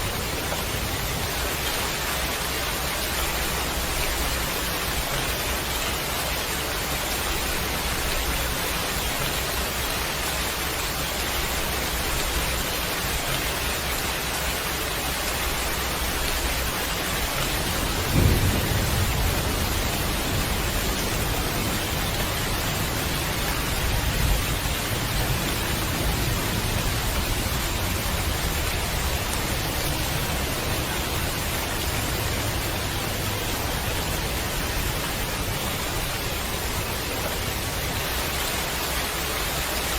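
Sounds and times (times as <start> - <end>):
steady rain hiss: 0.0 - 39.9
thunder rumbling: 15.5 - 37.8.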